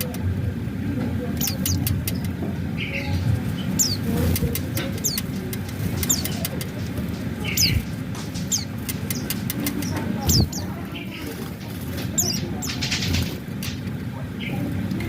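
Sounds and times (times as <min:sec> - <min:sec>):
low background rumble: 0:00.0 - 0:15.0
sharp ticks: 0:01.4 - 0:02.4, 0:03.8 - 0:10.6.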